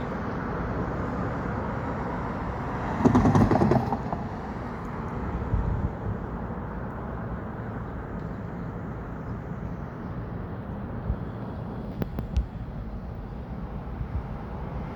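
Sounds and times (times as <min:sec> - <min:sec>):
train rumbling: 0:00.0 - 0:06.2.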